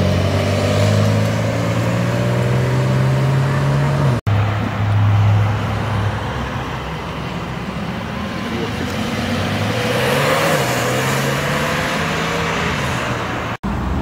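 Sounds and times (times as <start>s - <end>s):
car engine pulling away: 0.0s - 4.2s
road noise: 0.0s - 14.0s.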